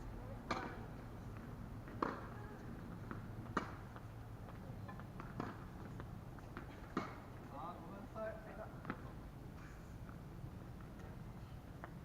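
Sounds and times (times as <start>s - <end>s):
racket hitting tennis ball: 0.4s - 0.9s, 1.9s - 2.3s, 3.1s - 3.9s, 5.2s - 5.6s, 6.5s - 7.3s
tennis ball bouncing: 0.4s - 4.1s, 4.9s - 7.5s.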